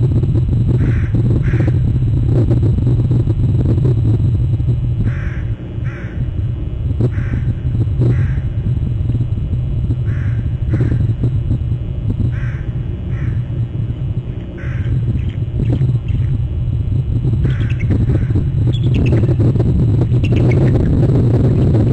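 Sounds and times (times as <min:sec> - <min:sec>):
steady low rumble: 0:00.0 - 0:21.9
crow-like caws: 0:00.8 - 0:01.8, 0:05.0 - 0:06.3, 0:07.1 - 0:08.5, 0:10.0 - 0:11.2, 0:12.3 - 0:13.5, 0:14.4 - 0:15.4, 0:17.4 - 0:18.5.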